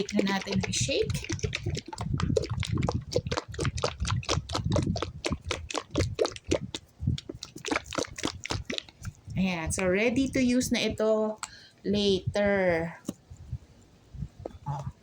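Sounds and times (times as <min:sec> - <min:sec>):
liquid sloshing in shaken bottle: 0:00.0 - 0:09.5.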